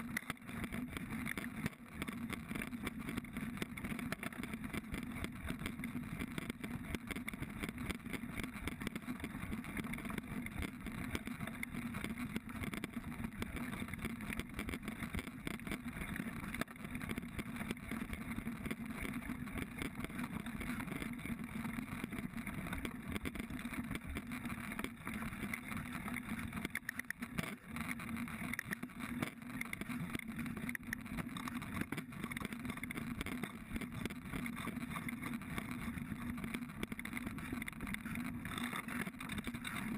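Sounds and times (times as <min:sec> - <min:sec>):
bike rattling and knocking: 0:00.0 - 0:39.9.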